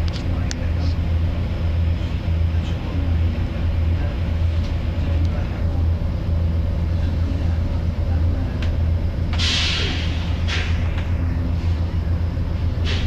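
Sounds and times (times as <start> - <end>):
bus cooling fan running: 0.0 - 13.0
idling diesel buses drone: 0.0 - 13.0
compressed air hiss: 9.4 - 10.8.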